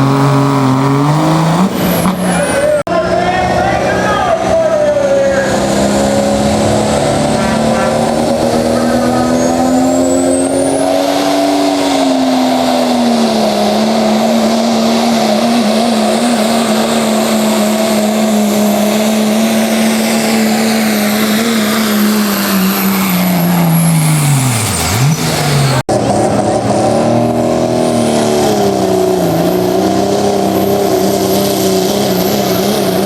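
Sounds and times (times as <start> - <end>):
diesel engine at full throttle: 0.0 - 33.0
turbocharger whistle: 4.1 - 25.8, 28.4 - 33.0.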